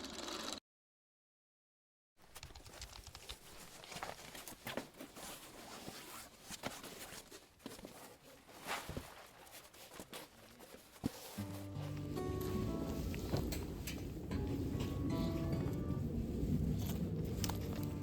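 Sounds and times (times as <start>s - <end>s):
irregular clicks and crackles: 2.2s - 4.8s, 16.6s - 18.0s
rustling: 2.2s - 18.0s.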